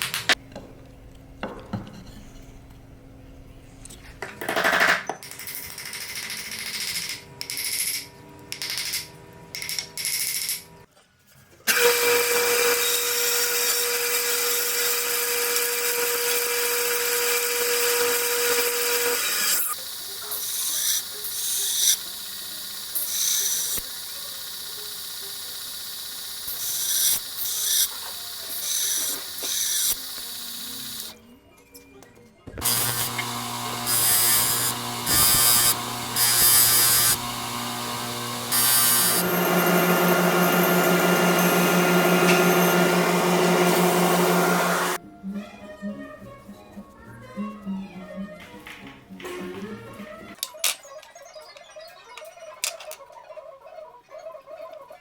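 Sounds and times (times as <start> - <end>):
power tool running: 11.7 - 31.2, 32.6 - 45.0.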